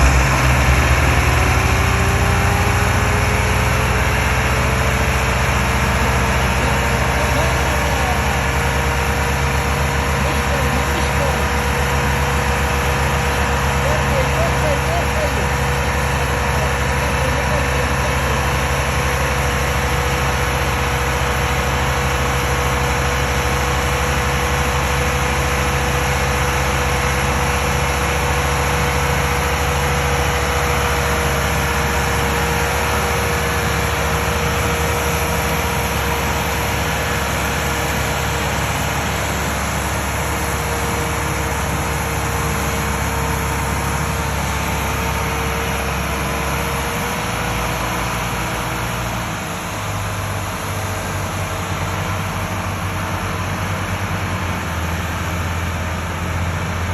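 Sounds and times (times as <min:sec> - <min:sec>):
thin steady whine: 0:00.0 - 0:34.7
tractor diesel engine droning: 0:00.0 - 0:56.9.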